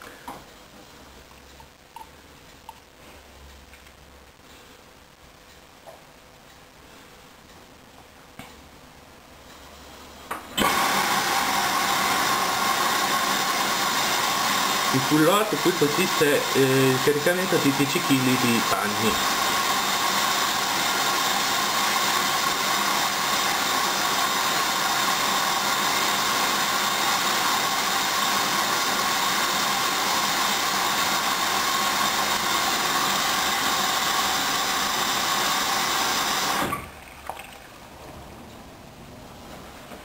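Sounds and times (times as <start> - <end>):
water rushing into washing machine: 25.7 - 38.0.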